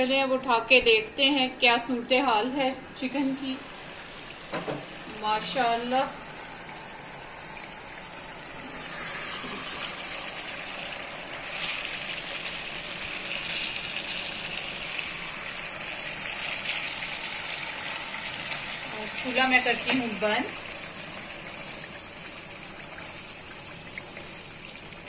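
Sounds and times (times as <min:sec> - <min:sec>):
food sizzling in a frying pan: 0:03.0 - 0:25.0.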